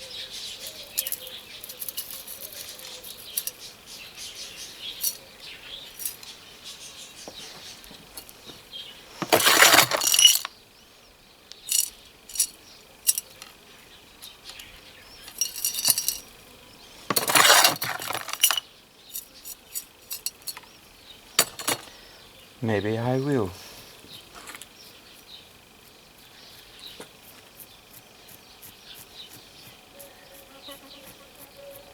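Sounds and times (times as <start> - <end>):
small tools clinking and tapping: 0.6 - 3.7, 5.0 - 5.2, 6.0 - 6.3, 7.9 - 8.4, 9.2 - 10.5, 11.5 - 13.6, 14.2 - 16.3, 17.1 - 20.7, 21.4 - 21.9
rustling and scraping: 0.6 - 5.2, 5.9 - 10.5, 11.6 - 13.6, 14.2 - 16.3, 16.9 - 20.7, 21.4 - 22.0, 23.6 - 28.2.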